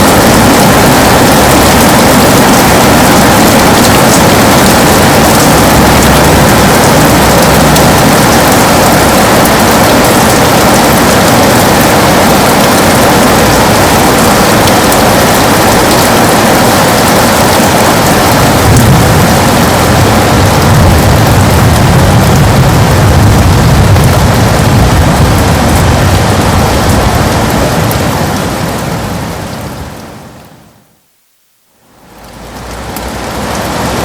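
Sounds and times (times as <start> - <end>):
heavy rain on a window: 0.0 - 34.0
low rumble: 0.1 - 16.1, 18.0 - 29.2.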